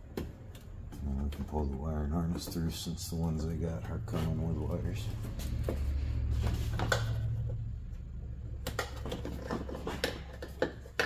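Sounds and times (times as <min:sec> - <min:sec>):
low hum: 0:03.2 - 0:09.3
plastic clicks and knocks: 0:08.6 - 0:11.0.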